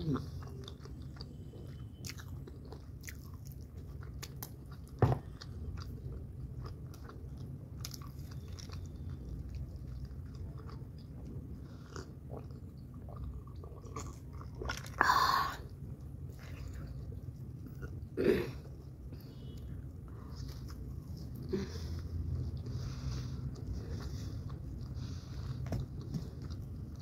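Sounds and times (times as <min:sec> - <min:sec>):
chewing with wet mouth clicks: 0:00.0 - 0:15.0, 0:23.5 - 0:27.0.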